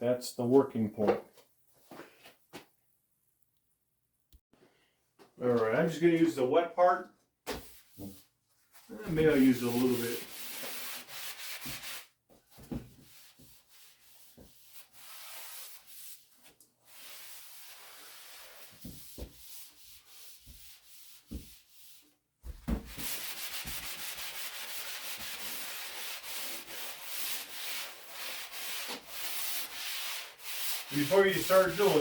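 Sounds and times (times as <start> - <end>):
damp sponge scrubbing drywall: 8.8 - 12.2, 12.8 - 32.0.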